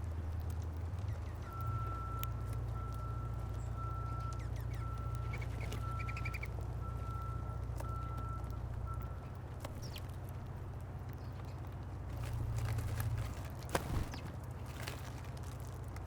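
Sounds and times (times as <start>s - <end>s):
low engine rumble: 0.0s - 16.0s
bird chirps: 1.0s - 2.1s, 3.0s - 7.3s, 9.1s - 10.1s
vehicle reversing alarm beeping: 1.4s - 10.0s.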